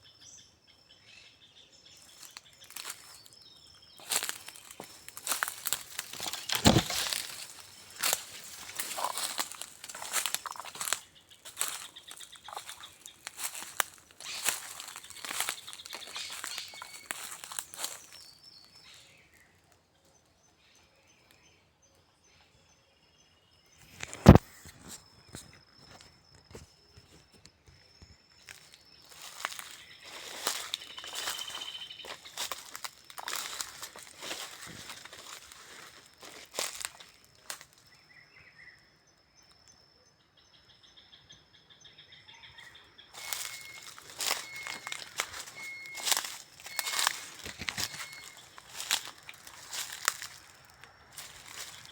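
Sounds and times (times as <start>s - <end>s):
insects trilling: 1.8s - 18.7s, 23.9s - 51.9s
rapid insect chirps: 1.9s - 18.7s, 23.8s - 51.9s
short high bird calls: 4.0s - 18.2s, 29.1s - 35.8s, 42.3s - 50.5s
loud crackling rustle: 4.4s - 11.9s
faint steady high tone: 42.6s - 50.0s
clicks and rustles: 43.8s - 50.5s.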